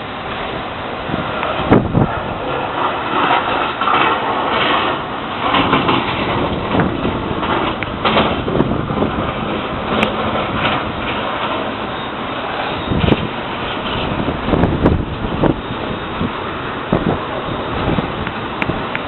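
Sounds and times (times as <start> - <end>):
wind gusting against microphone: 0.0 - 19.0.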